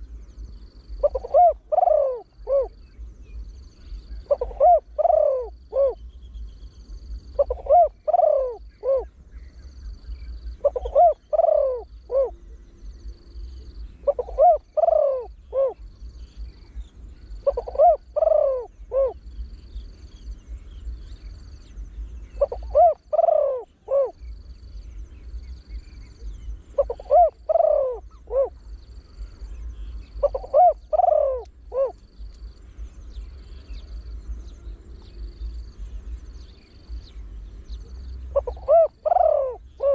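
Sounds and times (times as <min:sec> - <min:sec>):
dove cooing: 0:00.9 - 0:02.9, 0:03.9 - 0:06.1, 0:07.2 - 0:09.2, 0:10.6 - 0:12.5, 0:13.9 - 0:16.5, 0:17.2 - 0:19.3, 0:22.2 - 0:24.4, 0:25.9 - 0:32.3, 0:37.9 - 0:39.9.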